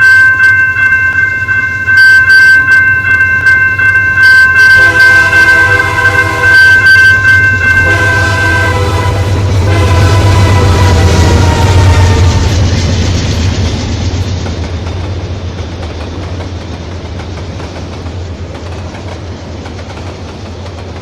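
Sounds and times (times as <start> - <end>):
train rumble: 0.0 - 21.0
locomotive air horn chord: 4.7 - 6.9, 7.7 - 12.5
wheels clicking on rails: 12.3 - 21.0.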